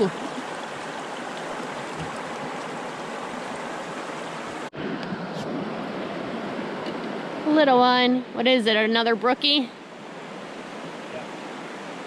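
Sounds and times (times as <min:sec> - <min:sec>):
fast-running brook: 0:00.0 - 0:04.7.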